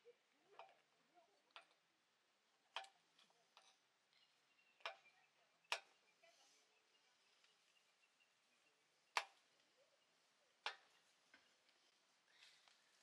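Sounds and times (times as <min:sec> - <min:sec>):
faint clicks and ticks: 0:00.3 - 0:01.9, 0:02.5 - 0:06.3, 0:09.1 - 0:09.8, 0:10.5 - 0:13.0.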